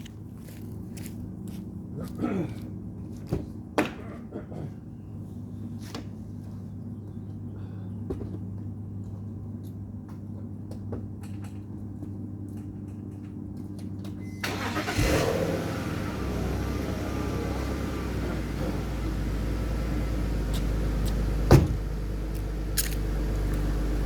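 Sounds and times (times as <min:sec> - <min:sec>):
car engine starting and running: 0:14.2 - 0:24.0.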